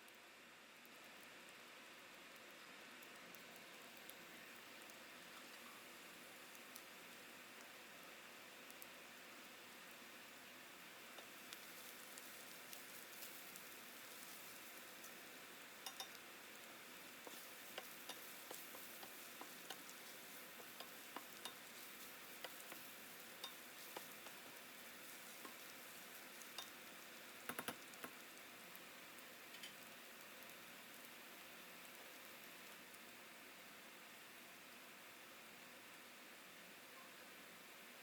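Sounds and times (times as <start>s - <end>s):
food sizzling in a pan: 0.2s - 38.0s
sharp clicks and taps: 27.5s - 28.2s.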